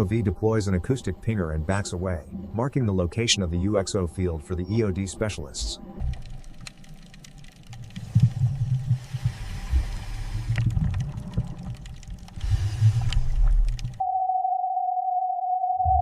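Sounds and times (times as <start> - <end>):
faint clicks: 5.6 - 14.0.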